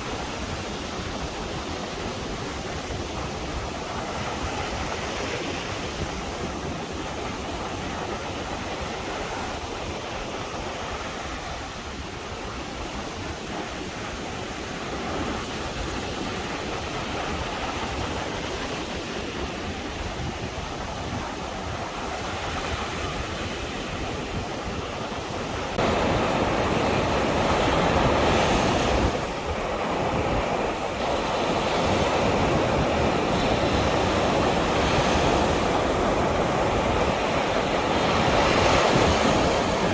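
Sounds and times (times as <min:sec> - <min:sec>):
surf washing onto beach: 0:00.0 - 0:39.9
wind on microphone: 0:00.0 - 0:39.9.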